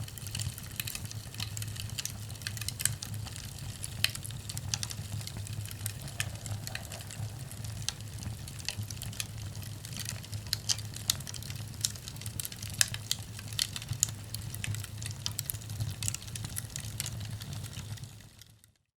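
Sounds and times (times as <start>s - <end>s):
firewood crackling and popping: 0.0s - 18.9s
low rumble of fire: 0.0s - 18.9s.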